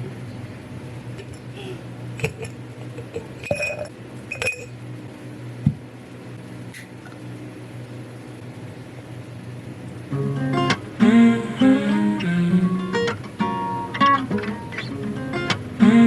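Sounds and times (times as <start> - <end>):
low steady hum: 0.0 - 16.0
glass dishware clinking: 2.2 - 4.8.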